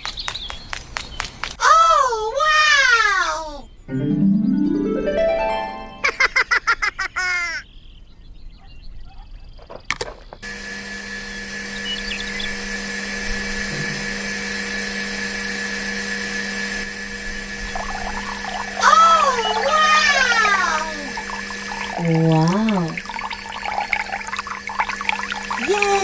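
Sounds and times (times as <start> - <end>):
sharp click: 9.9 - 10.2
small electric motor running: 10.4 - 26.0.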